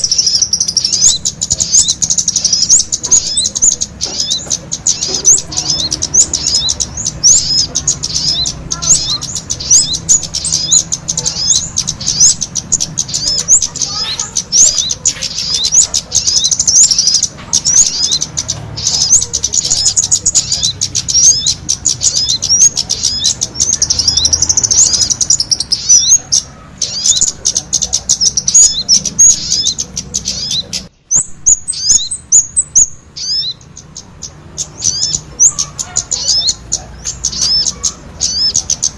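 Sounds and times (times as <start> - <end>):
high bird chirps: 0.0 - 38.9.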